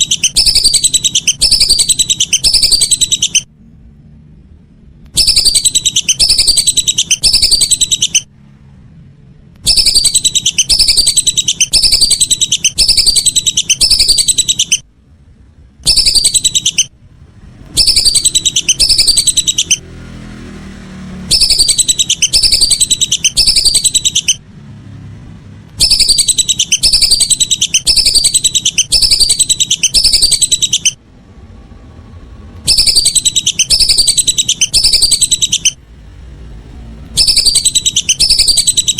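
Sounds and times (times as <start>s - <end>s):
whistling duck calls: 0.0s - 3.5s, 5.2s - 8.3s, 9.6s - 14.8s, 15.8s - 16.9s, 17.7s - 19.8s, 21.3s - 24.4s, 25.8s - 31.0s, 32.6s - 35.8s, 37.1s - 38.9s.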